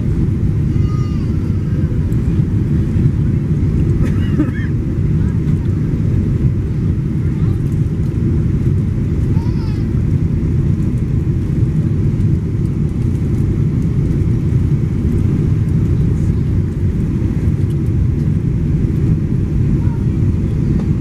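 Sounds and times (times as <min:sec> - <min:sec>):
rushing air: 0:00.0 - 0:04.1
plane engines rumbling: 0:00.0 - 0:21.0.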